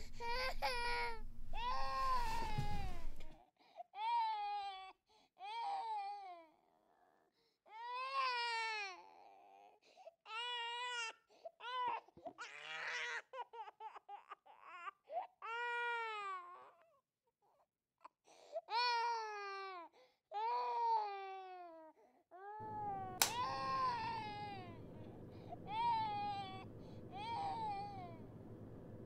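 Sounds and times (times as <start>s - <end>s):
baby crying: 0.0s - 3.2s, 22.4s - 24.8s, 25.4s - 28.2s.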